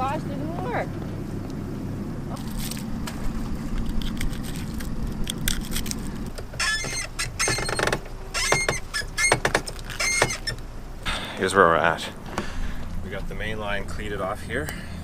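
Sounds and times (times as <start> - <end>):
boat engine running: 0.0 - 15.0
short high-pitched squeaks: 6.6 - 10.6.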